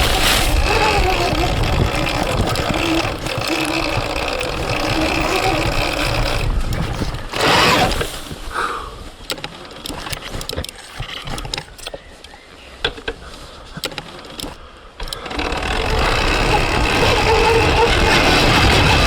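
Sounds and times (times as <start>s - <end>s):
electric dirt bike motor: 0.0s - 8.5s, 13.7s - 19.0s
sharp clicks and knocks: 9.2s - 19.0s.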